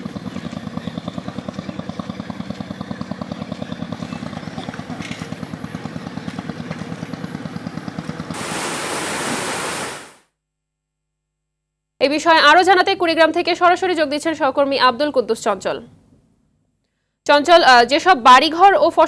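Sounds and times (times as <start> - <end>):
engine chugging: 0.0 - 9.0
loud rushing hiss: 8.4 - 10.2.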